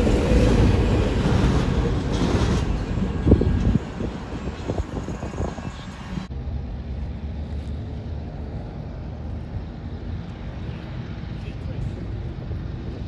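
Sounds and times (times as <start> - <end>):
train wheels clattering on rail: 0.0 - 5.6
distant diesel locomotive rumble: 0.0 - 13.0.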